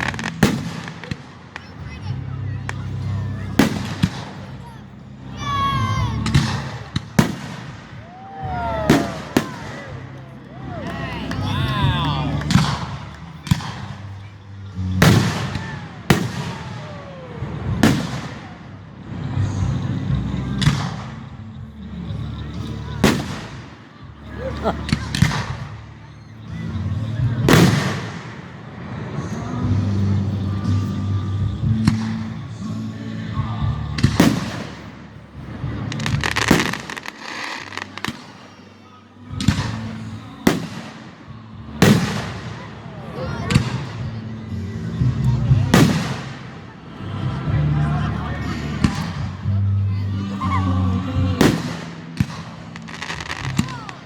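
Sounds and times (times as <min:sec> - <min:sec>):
fireworks booming: 0:00.0 - 0:01.8, 0:03.5 - 0:04.8, 0:06.2 - 0:10.2, 0:14.8 - 0:19.6, 0:34.0 - 0:38.3, 0:41.8 - 0:42.7, 0:45.5 - 0:46.7, 0:51.4 - 0:54.0
dense fireworks crackling: 0:00.0 - 0:49.8, 0:50.7 - 0:54.0.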